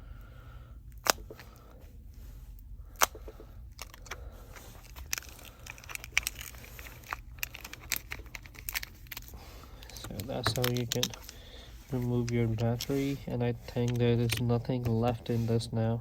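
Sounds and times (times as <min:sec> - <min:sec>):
adhesive ticking and crackling: 0:03.0 - 0:13.0.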